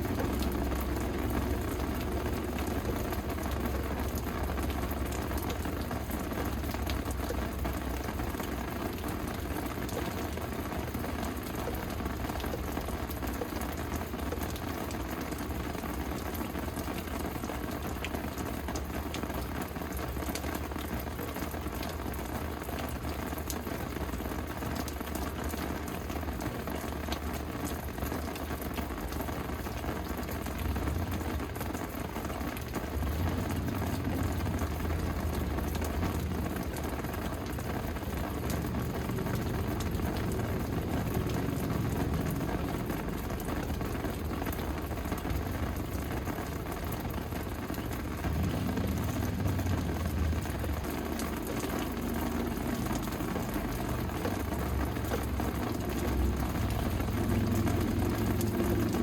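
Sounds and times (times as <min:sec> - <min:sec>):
rain falling: 0:00.0 - 0:59.0
raindrops ticking: 0:00.0 - 0:59.0
low rumble: 0:47.9 - 0:53.0.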